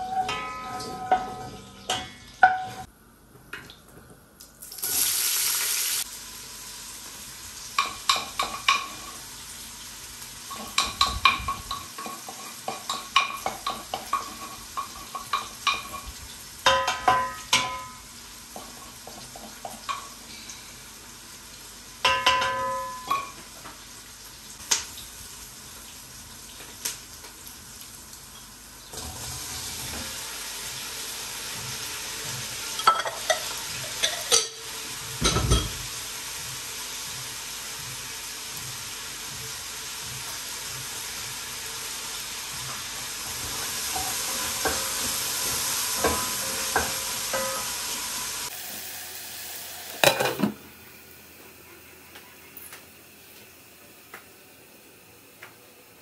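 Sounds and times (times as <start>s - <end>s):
metal spoon clinking on pot: 0.0s - 2.9s
food sizzling in a pot: 4.6s - 55.3s.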